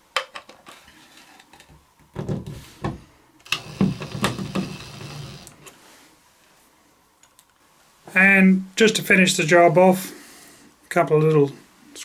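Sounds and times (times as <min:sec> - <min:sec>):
hard objects clicking and clattering: 0:01.6 - 0:05.7.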